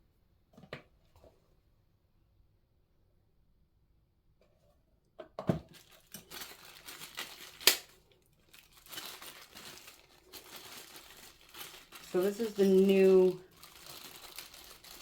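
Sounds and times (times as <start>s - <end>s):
plastic packaging crinkling and tearing: 5.7s - 15.0s.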